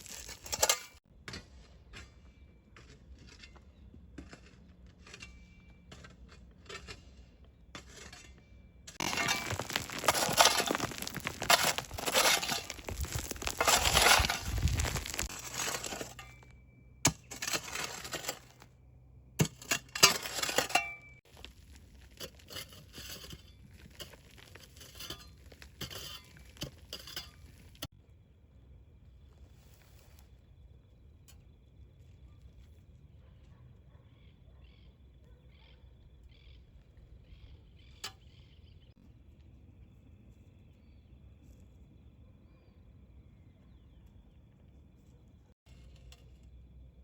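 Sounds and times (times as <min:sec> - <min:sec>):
crunching and rustling: 0:00.0 - 0:01.0, 0:08.9 - 0:16.5, 0:17.1 - 0:18.7, 0:19.5 - 0:27.9.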